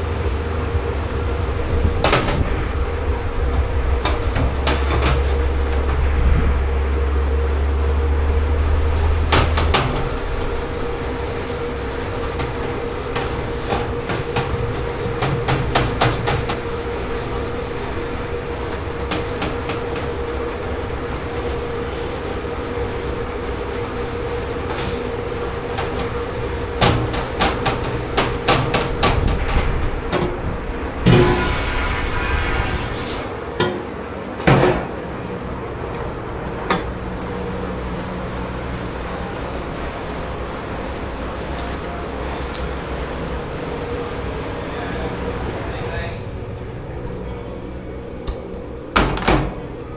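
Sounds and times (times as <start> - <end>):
machine hum: 0.0 - 49.9
dishes and pots clattering: 25.7 - 32.0
hiss: 31.0 - 33.4.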